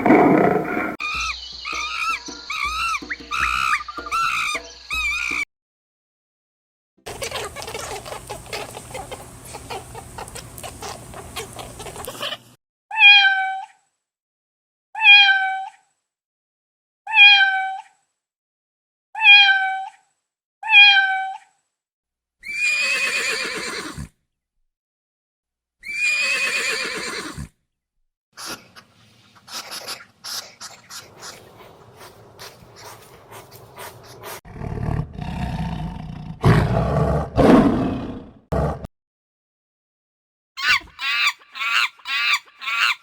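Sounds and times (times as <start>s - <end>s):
busy crackling: 7.1s - 12.4s, 29.6s - 34.4s
cat meowing: 12.9s - 13.7s, 15.0s - 15.7s, 17.1s - 17.8s, 19.2s - 19.9s, 20.6s - 21.4s.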